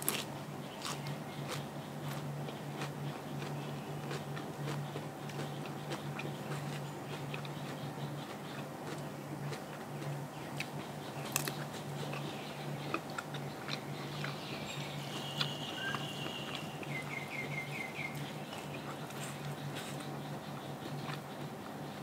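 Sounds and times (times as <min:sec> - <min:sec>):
person chewing and crunching food: 0:00.0 - 0:22.0
bird chirping: 0:10.3 - 0:22.0.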